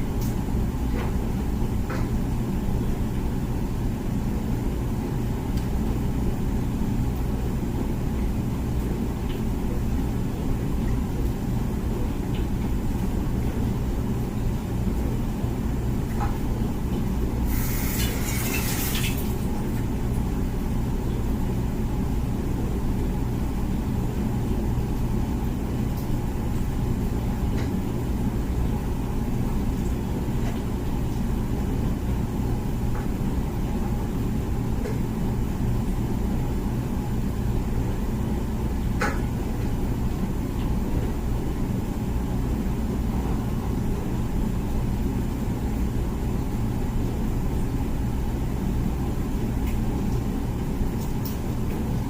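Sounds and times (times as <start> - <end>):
dishwasher pump rumbling: 15.8 - 20.6
short hiss: 17.5 - 19.0.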